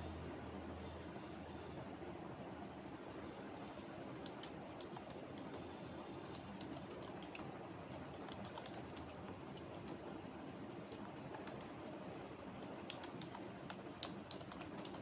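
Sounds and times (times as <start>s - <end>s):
low background hum: 0.0s - 15.0s
computer keyboard key clicks: 3.6s - 5.6s, 6.3s - 10.1s, 10.9s - 11.8s, 12.6s - 15.0s.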